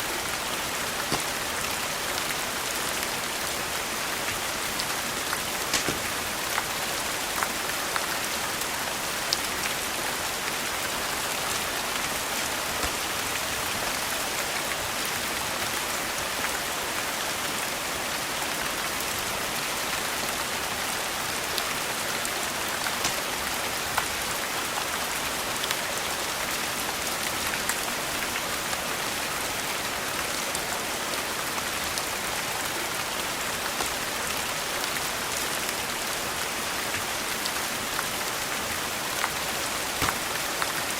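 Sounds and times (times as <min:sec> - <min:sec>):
steady rain hiss: 0:00.0 - 0:40.9
sharp raindrop ticks: 0:04.1 - 0:07.5, 0:22.6 - 0:24.1, 0:40.0 - 0:40.9.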